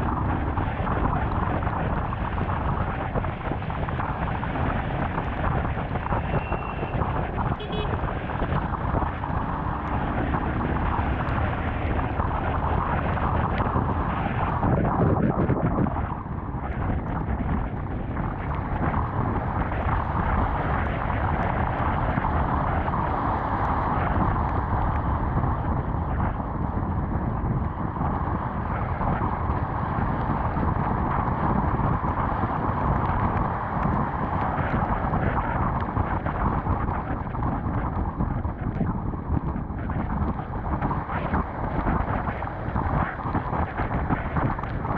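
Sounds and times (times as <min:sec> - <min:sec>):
tyres on wet road: 0:00.0 - 0:44.9
wind noise on microphone: 0:00.0 - 0:44.9
motorcycle engine: 0:06.4 - 0:12.7.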